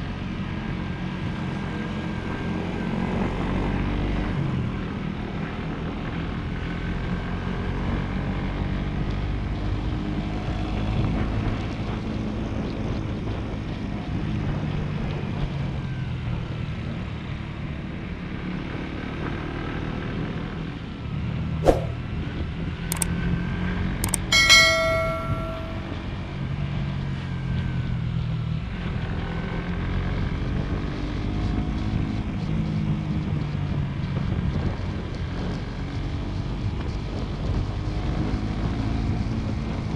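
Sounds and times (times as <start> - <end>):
sharp clicks: 24.0 - 24.4
short pitched beep: 24.1 - 25.9.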